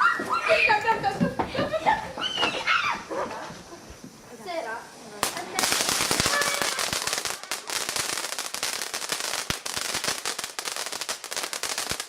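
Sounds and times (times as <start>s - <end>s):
firework crackling and hissing: 0.0s - 12.0s
loud firework cracks: 5.2s - 12.0s.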